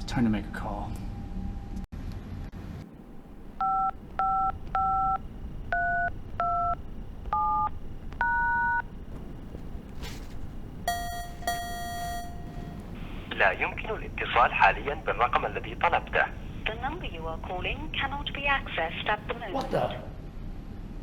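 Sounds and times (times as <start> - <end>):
touch-tone keypad beeps: 3.6 - 8.9, 10.8 - 13.0
buzzy phone tone: 3.6 - 15.2.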